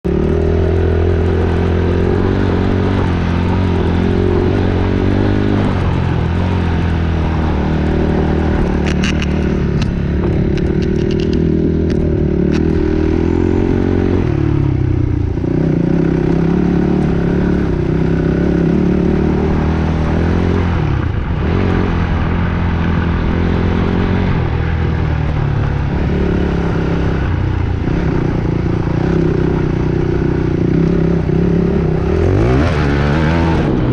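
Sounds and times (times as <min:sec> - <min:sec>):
dirt bike engine revving: 0:00.0 - 0:33.9
sharp clicks: 0:08.6 - 0:12.8.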